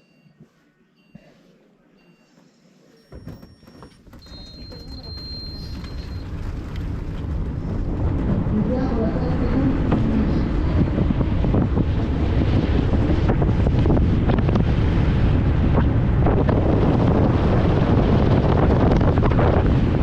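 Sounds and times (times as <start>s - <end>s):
knocks and rattles from bumps: 3.1s - 8.3s
tyre and chassis rumble: 3.1s - 20.0s
wind buffeting microphone: 4.0s - 20.0s.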